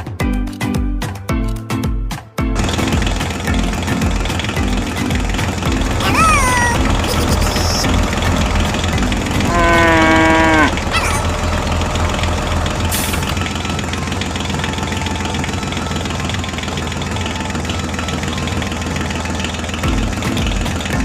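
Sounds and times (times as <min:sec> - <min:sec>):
tractor engine idling: 0:02.6 - 0:21.0
loud falling pitched tone: 0:05.9 - 0:15.5.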